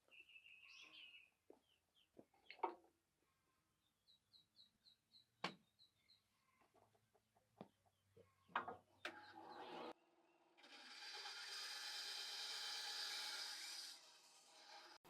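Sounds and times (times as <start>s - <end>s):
small bird chirping: 0.0s - 2.6s, 3.8s - 6.6s.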